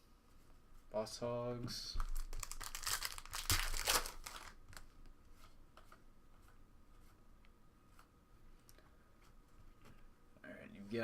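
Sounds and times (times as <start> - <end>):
wrapper crinkling: 2.0 - 4.9.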